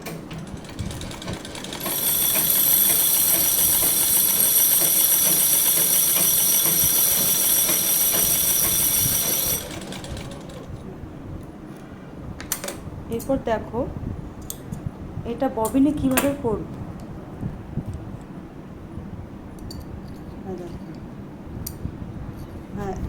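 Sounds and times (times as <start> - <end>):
sewing machine running: 0.0 - 10.8.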